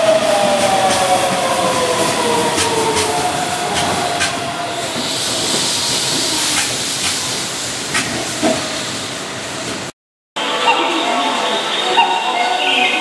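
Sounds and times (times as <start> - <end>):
train rolling hiss: 0.0 - 9.9.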